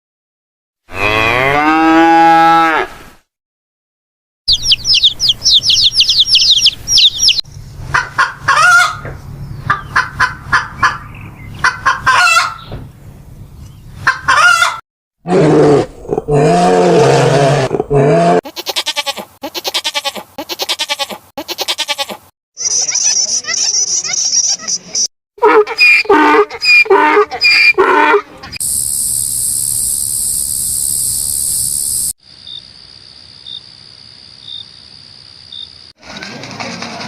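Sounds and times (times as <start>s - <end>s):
fast stuttering animal call: 4.5s - 7.4s, 25.4s - 30.4s
high-pitched chirping: 4.5s - 7.4s, 22.6s - 25.0s, 25.8s - 27.8s, 28.5s - 32.1s
chickens clucking: 4.5s - 12.8s, 14.0s - 14.8s
rooster crowing: 14.3s - 14.8s.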